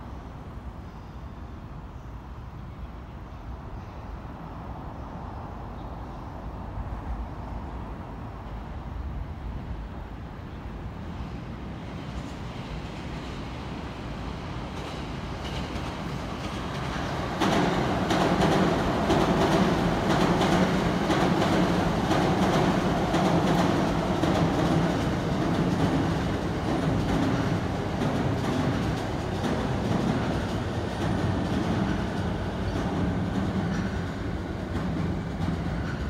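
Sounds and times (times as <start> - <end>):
electric train passing: 6.5 - 36.0
rail-joint clicks: 14.6 - 36.0.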